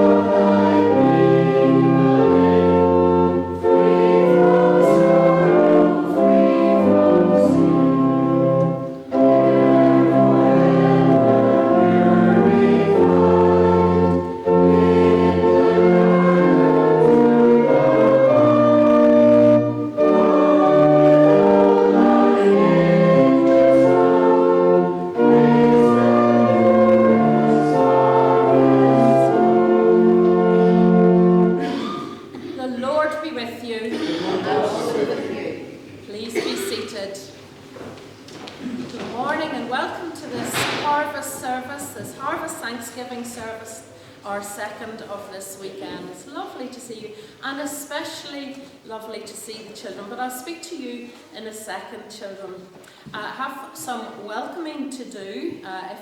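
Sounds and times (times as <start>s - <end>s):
congregation singing a hymn: 0.0s - 32.6s, 33.9s - 37.0s
church organ: 0.0s - 33.2s.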